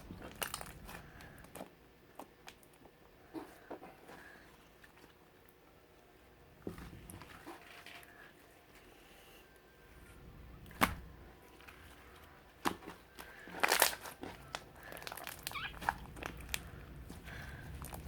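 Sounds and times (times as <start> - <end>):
slime squishing with pops: 0.0 - 3.0, 12.6 - 18.0.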